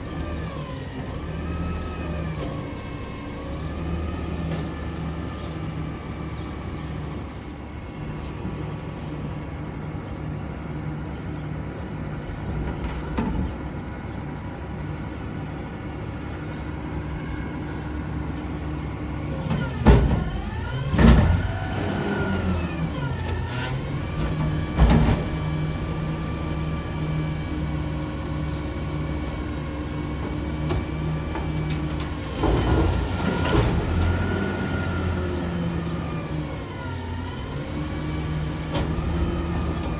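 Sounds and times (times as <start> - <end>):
garbage truck engine revving: 0.0 - 7.2, 18.0 - 39.9.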